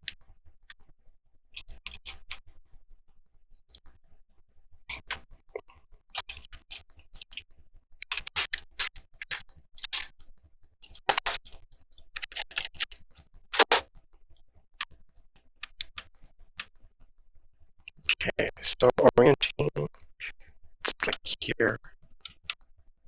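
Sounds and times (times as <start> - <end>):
plastic bricks clicking and clattering: 8.0 - 10.2, 10.8 - 11.6, 12.2 - 13.8.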